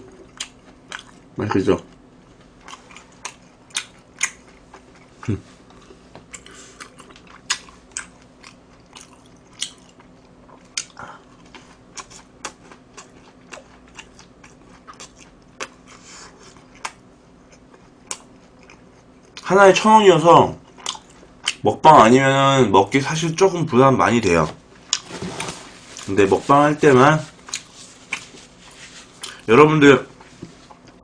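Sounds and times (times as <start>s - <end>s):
chewing crunchy food: 0.0s - 19.5s, 20.6s - 21.6s, 27.3s - 29.5s
faint steady hum: 0.0s - 31.0s.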